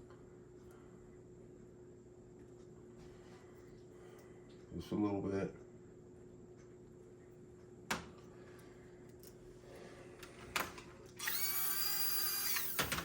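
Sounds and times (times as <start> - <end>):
slot car motor whining: 11.2 - 13.0.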